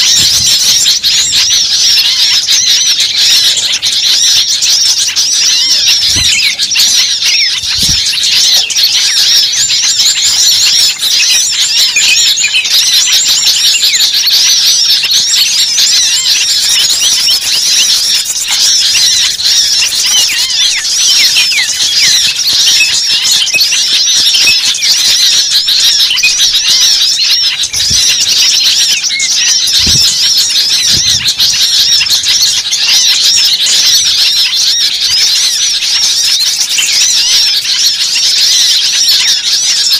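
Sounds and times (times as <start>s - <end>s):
small birds chirping frantically: 0.0s - 39.9s.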